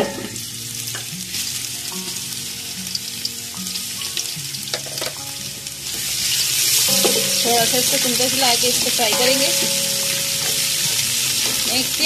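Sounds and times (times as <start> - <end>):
garlic paste sizzling in oil: 0.0 - 12.0.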